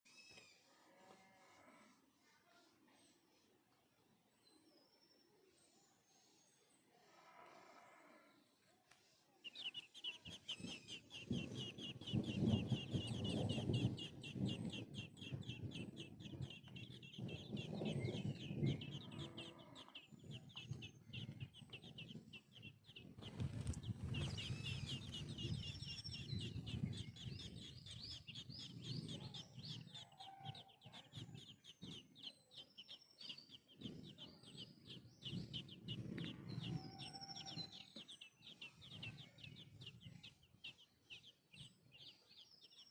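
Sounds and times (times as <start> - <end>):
fast high bird chirps: 9.4 - 42.9
lower bird calls: 9.4 - 42.9.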